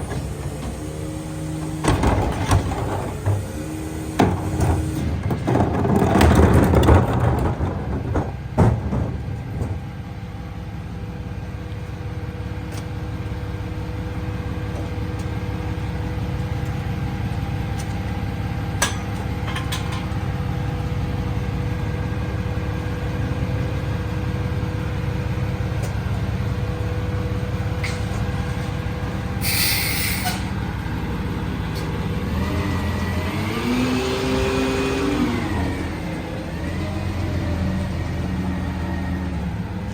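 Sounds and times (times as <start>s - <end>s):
truck engine and hydraulics running: 0.0s - 39.9s
loud bangs and clatter: 1.6s - 10.0s
air hiss: 29.4s - 30.4s.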